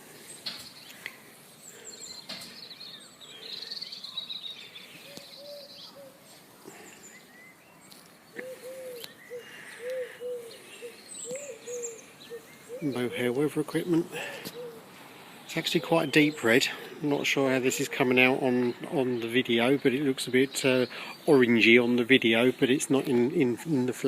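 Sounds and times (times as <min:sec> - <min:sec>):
small birds chirping: 0:00.0 - 0:24.0
pigeon cooing: 0:05.0 - 0:07.1, 0:08.3 - 0:13.4, 0:14.0 - 0:15.0.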